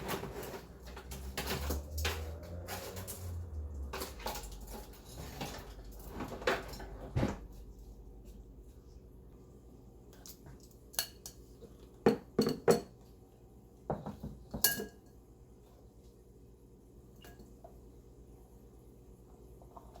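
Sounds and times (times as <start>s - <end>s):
utensils clinking: 0.0s - 7.0s.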